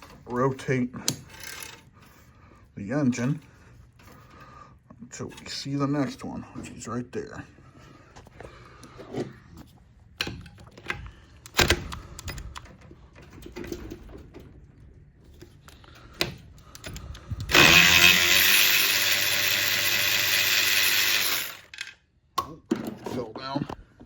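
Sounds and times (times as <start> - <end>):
power wrench running: 16.9 - 22.0.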